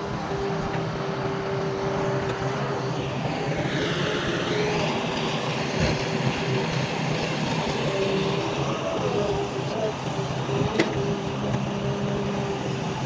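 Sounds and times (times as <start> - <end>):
heavy diesel machinery running: 0.0 - 13.0
high whine: 0.0 - 13.0.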